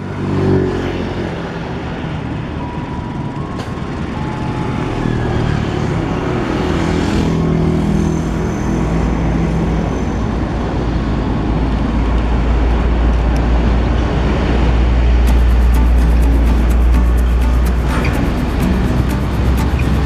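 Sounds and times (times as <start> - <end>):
diesel locomotive rumbling: 7.8 - 20.0.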